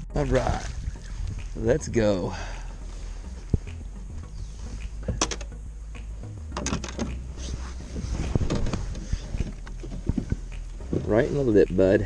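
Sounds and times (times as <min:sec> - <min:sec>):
steady low rumble: 0:00.0 - 0:12.0
knocks and clatter in a kayak: 0:06.6 - 0:07.1, 0:08.3 - 0:10.4
cloth rubbing on microphone: 0:07.4 - 0:10.3.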